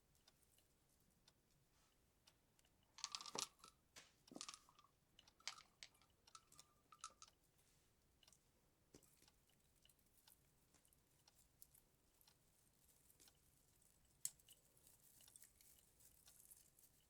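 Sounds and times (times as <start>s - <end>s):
baubles clicking and clinking: 2.9s - 7.4s
baubles tapping and ringing: 3.0s - 3.7s, 4.3s - 7.3s.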